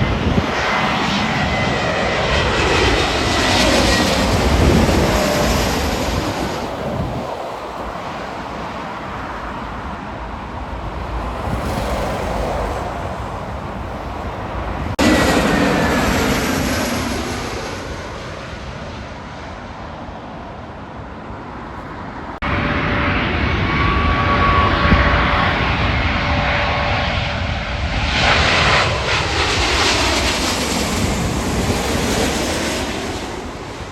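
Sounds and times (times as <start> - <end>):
falling whine: 0.0 - 11.4, 12.2 - 18.3
jet airliner engine rushing: 0.0 - 33.9.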